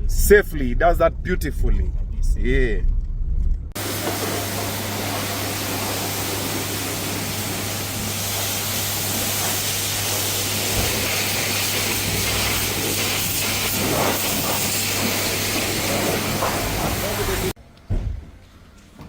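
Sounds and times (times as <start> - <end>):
low hum: 0.0 - 8.2
pressure washer spraying water: 3.8 - 17.6.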